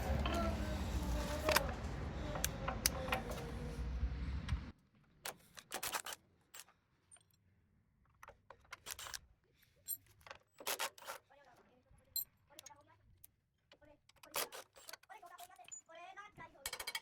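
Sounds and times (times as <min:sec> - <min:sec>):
low background hum: 0:00.0 - 0:04.7
wrench and bolts clinking: 0:16.6 - 0:17.0.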